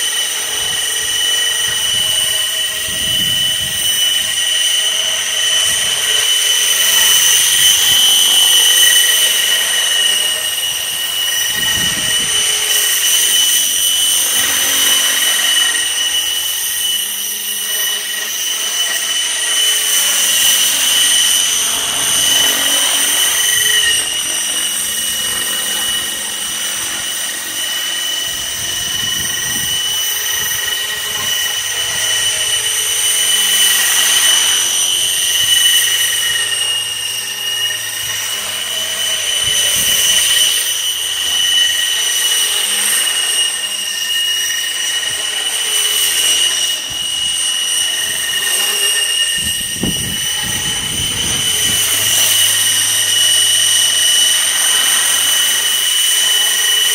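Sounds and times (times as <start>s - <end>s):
rc helicopter rotor whine: 0.0s - 56.9s
wind rumble on microphone: 0.6s - 4.2s, 11.4s - 12.6s, 28.3s - 32.0s, 49.4s - 52.8s.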